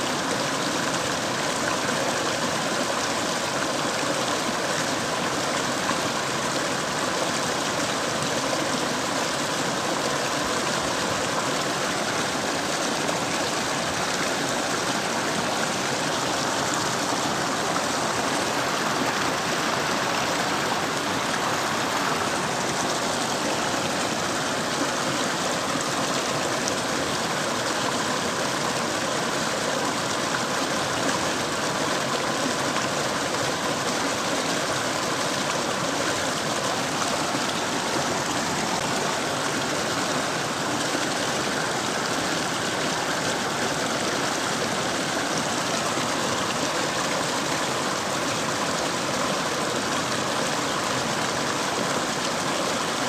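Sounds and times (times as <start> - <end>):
stream flowing over rocks: 0.0 - 53.0.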